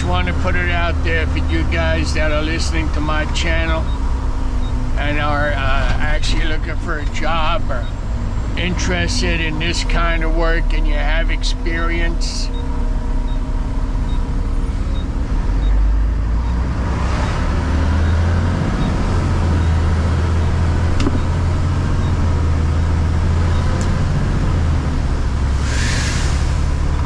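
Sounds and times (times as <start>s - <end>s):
diesel truck engine running: 0.0s - 27.0s
short hiss: 25.6s - 26.7s.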